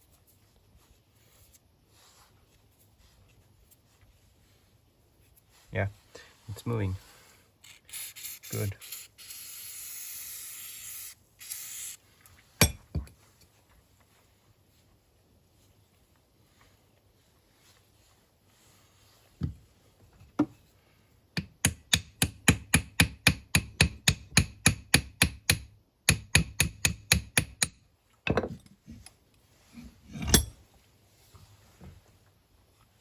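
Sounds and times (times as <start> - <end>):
hammer tapping on metal: 12.6 - 13.1, 21.4 - 27.8.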